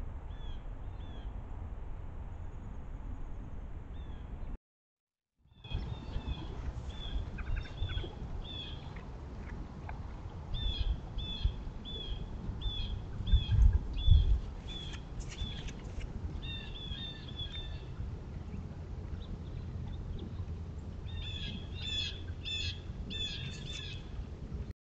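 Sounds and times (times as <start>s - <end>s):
steady low rumble: 0.0s - 4.6s, 5.4s - 24.7s
bird chirping: 10.6s - 15.7s, 16.4s - 18.0s, 21.0s - 24.1s.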